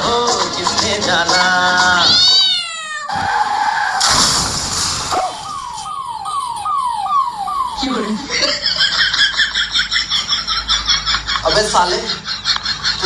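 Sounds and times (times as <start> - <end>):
noisy burst: 3.1 - 6.7
falling whistle glide: 3.2 - 8.1
quick descending tones: 3.2 - 8.2.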